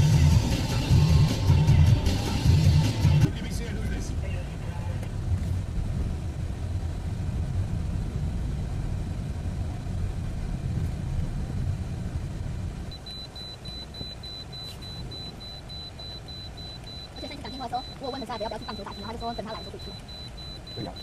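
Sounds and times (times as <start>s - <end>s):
car driving rumble: 3.0s - 21.0s
rapid high-pitched electronic beeping: 12.9s - 21.0s.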